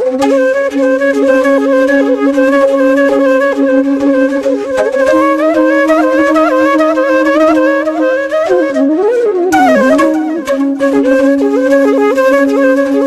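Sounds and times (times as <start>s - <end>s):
flute melody: 0.0s - 13.0s
steady drone note: 9.5s - 10.7s.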